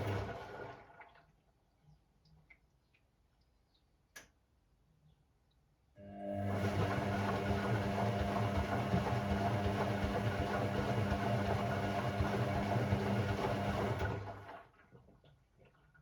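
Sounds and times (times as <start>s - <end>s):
washing machine motor running: 0.0s - 1.0s, 6.0s - 14.8s.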